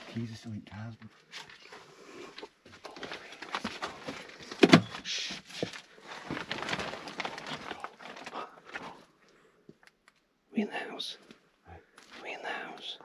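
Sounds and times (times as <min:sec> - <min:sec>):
handling noises: 0:02.4 - 0:09.1.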